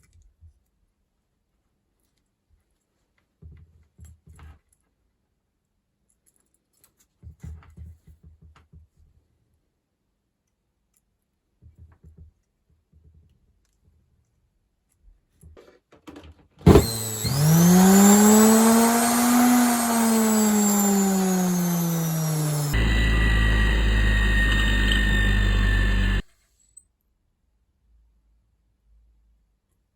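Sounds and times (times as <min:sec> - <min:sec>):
motor whining: 0:16.7 - 0:26.2.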